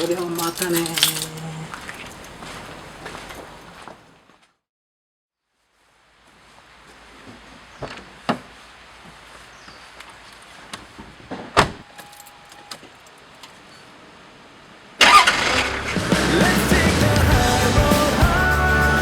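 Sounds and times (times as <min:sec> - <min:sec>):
keys jingling: 0:00.0 - 0:02.5
loud music: 0:15.8 - 0:19.0.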